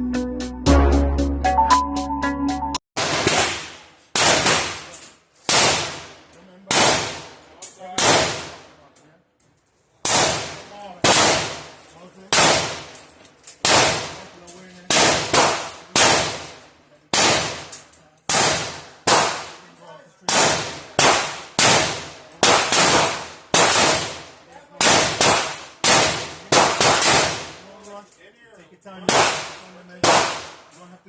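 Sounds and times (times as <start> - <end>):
gunshots echoing: 3.0 - 7.4, 8.0 - 8.8, 10.0 - 13.0, 13.6 - 14.3, 14.9 - 19.7, 20.3 - 27.6, 29.0 - 30.7.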